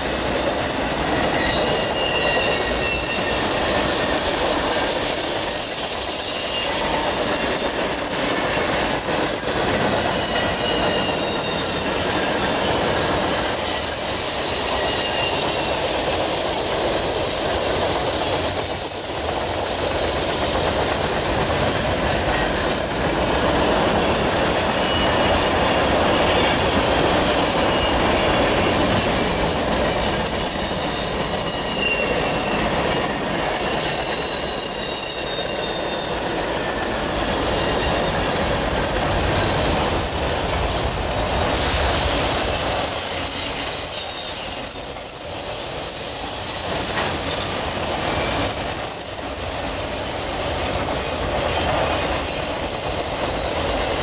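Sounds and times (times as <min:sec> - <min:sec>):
high-pitched wheel squeals: 0:00.0 - 0:54.0
train wheels rumbling on track: 0:00.0 - 0:54.0.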